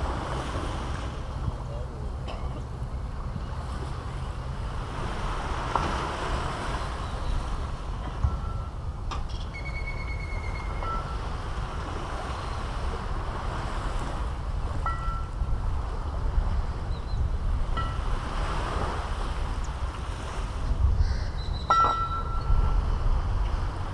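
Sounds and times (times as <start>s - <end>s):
wind rumble on microphone: 0.0s - 23.9s
bird whistles: 9.4s - 10.8s.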